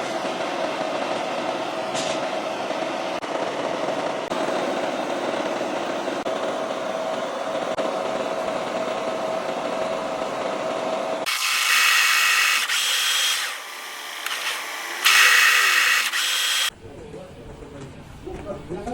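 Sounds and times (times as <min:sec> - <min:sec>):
power saw cutting metal: 0:10.5 - 0:16.7.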